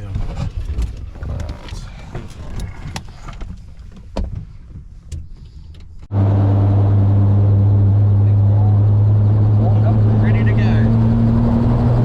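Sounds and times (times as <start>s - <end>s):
helicopter engine droning: 6.1s - 12.0s.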